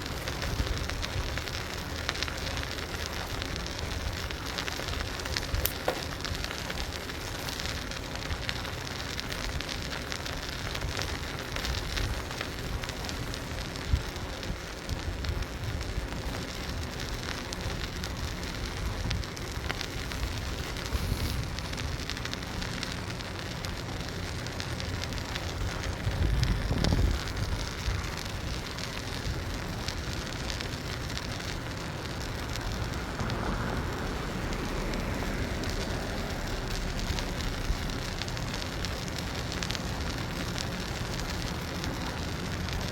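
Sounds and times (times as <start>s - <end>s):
bicycle rolling: 0.0s - 42.9s
low rumble: 18.8s - 42.7s
wind on microphone: 25.3s - 40.2s.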